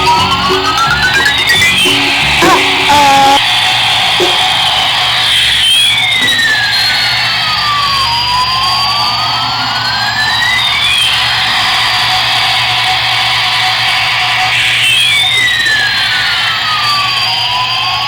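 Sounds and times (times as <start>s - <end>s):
toy jet engine sound effect: 0.1s - 3.4s.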